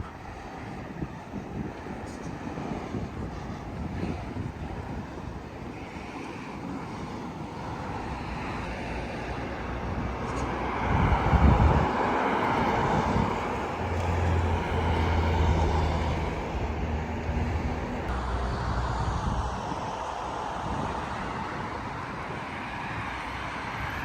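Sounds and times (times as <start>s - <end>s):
low engine hum: 6.6s - 24.0s
motor vehicle passing: 8.0s - 19.6s.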